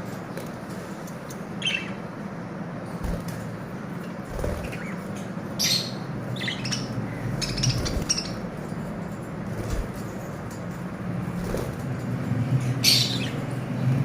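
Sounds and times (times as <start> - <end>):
low background hum: 0.0 - 14.0
lovebirds squawking and chirping: 1.6 - 2.1, 4.0 - 8.6, 12.8 - 13.4.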